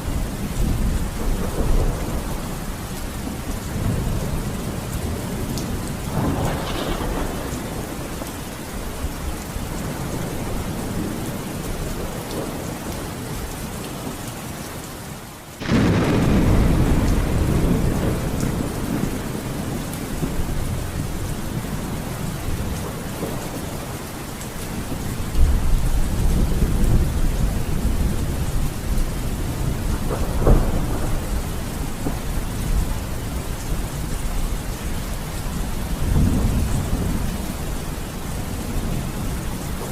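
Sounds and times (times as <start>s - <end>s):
heavy rain: 0.0s - 39.9s
rolling thunder: 0.2s - 13.0s, 15.6s - 24.1s, 24.7s - 39.9s
sharp thunder crack: 6.1s - 8.0s, 15.6s - 20.8s, 29.7s - 32.3s.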